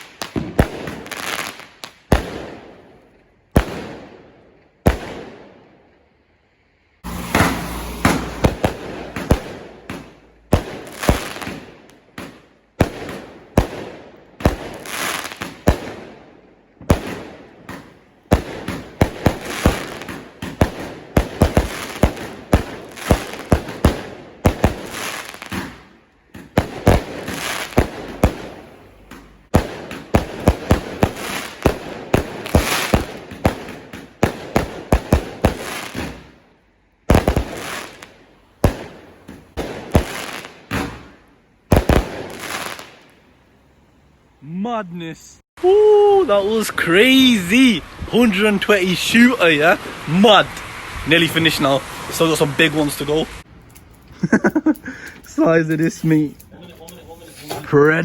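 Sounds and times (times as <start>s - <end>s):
hissing crackle of fireworks: 0.0s - 5.6s, 7.0s - 43.4s, 45.6s - 58.0s
firework bangs: 0.0s - 5.7s, 7.0s - 43.3s.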